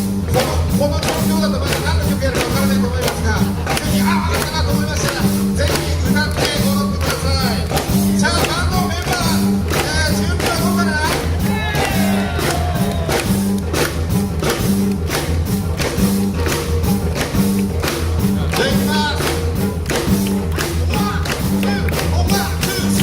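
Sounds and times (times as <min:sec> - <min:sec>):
live band playing: 0:00.0 - 0:23.0.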